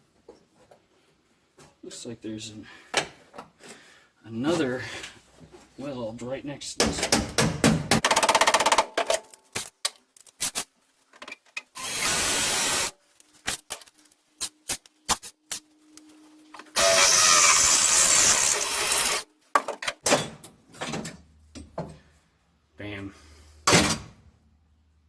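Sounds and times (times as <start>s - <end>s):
power drill cutting metal: 11.8s - 12.9s, 16.8s - 19.3s.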